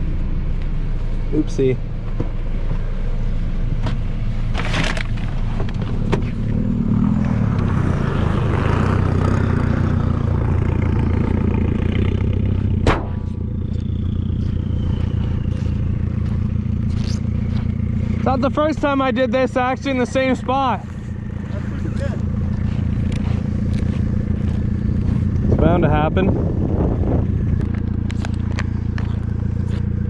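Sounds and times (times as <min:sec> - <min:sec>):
car scraping: 0:01.0 - 0:30.0
race car engine revving: 0:04.6 - 0:30.0
sharp crash knocks: 0:12.8 - 0:13.3.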